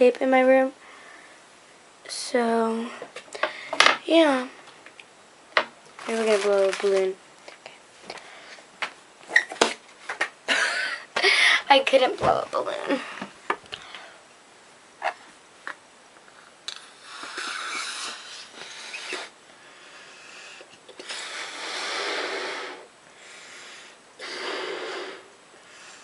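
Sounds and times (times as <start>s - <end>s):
person blowing into balloon: 16.8s - 26.0s.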